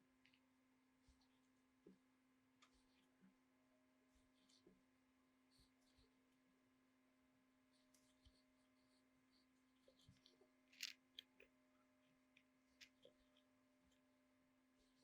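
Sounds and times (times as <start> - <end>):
faint clicks and ticks: 0.0 - 3.4, 7.7 - 14.2.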